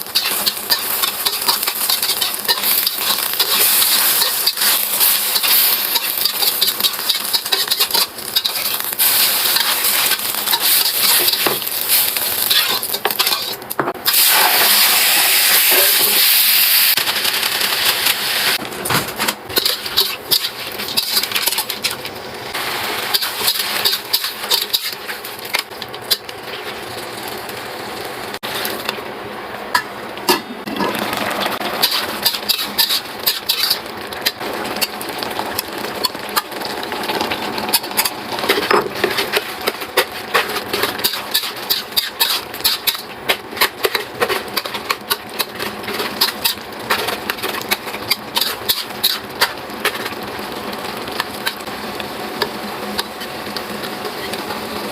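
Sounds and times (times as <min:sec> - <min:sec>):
kitchen utensils clicking and tapping: 0:00.0 - 0:11.7.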